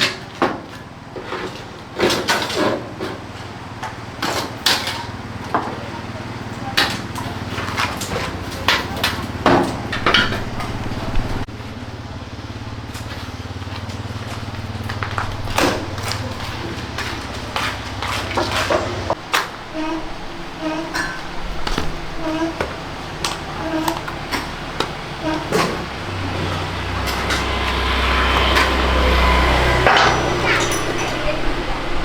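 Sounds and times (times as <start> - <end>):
steady low hum: 9.9 - 32.0
hand tools clinking on metal: 20.9 - 32.0.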